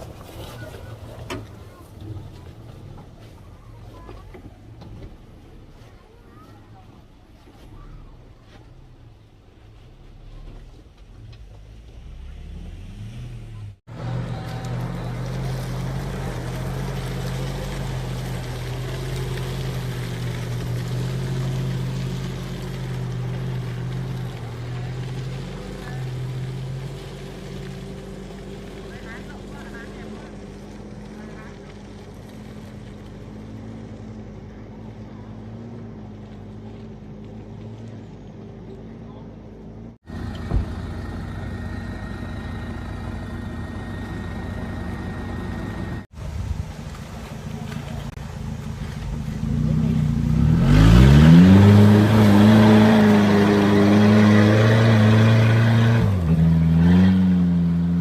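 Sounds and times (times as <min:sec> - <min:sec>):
car engine running steadily: 0:13.5 - 0:53.9
engine running at high revs: 0:47.7 - 0:58.0.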